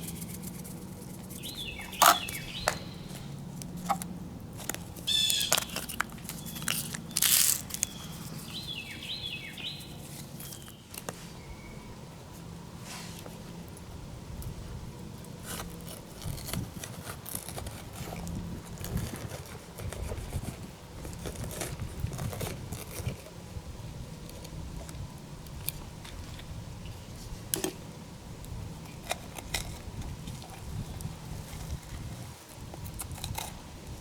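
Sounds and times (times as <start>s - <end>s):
utensils crunching and scraping: 0.0s - 11.4s, 15.2s - 23.4s, 28.8s - 34.0s.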